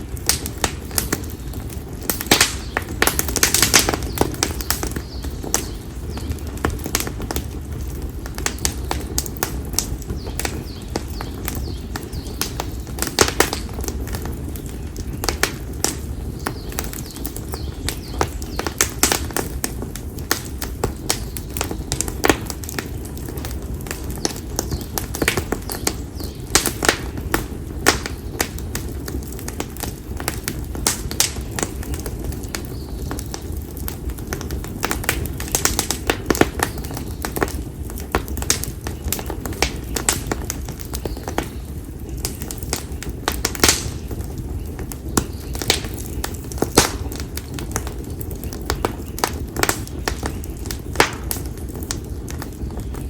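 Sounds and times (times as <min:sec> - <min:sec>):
campfire crackling: 0:00.0 - 0:53.0.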